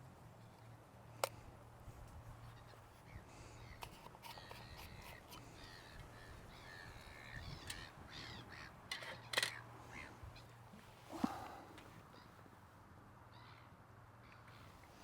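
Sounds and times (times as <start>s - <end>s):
harsh bird calls: 2.4s - 12.4s.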